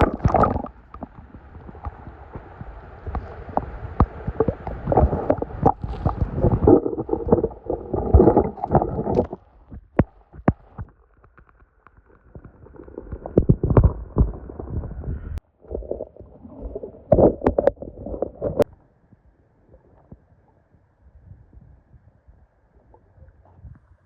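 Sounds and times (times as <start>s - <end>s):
water sloshing and splashing: 0.0s - 18.7s.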